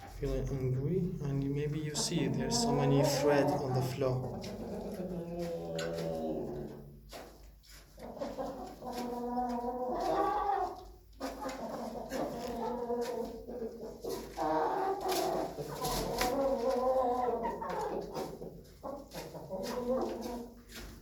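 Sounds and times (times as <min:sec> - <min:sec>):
chickens calling: 0:01.6 - 0:21.0.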